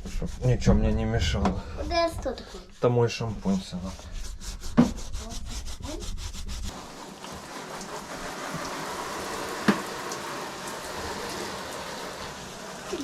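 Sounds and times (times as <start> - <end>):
scrubbing foam cushion: 2.8 - 13.0
running water hiss: 6.6 - 13.0.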